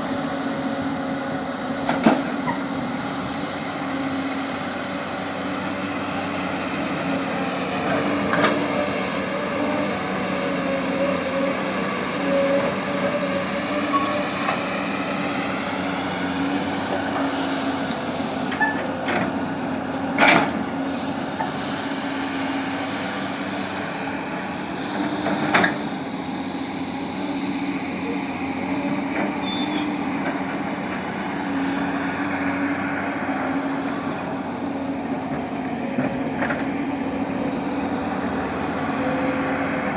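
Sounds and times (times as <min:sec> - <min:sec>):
excavator diesel engine droning: 0:00.0 - 0:39.9
hydraulic whine: 0:01.8 - 0:15.9, 0:16.6 - 0:19.6, 0:28.0 - 0:35.4.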